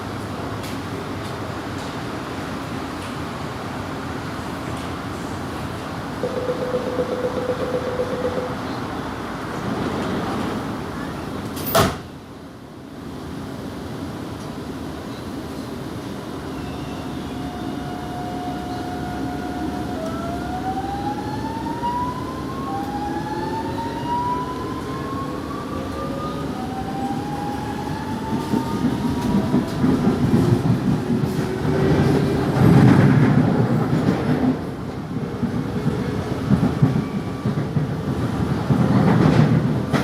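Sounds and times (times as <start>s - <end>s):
electric train traction whine: 6.2s - 9.0s, 16.8s - 32.3s
wheels rumbling on track: 13.0s - 40.0s.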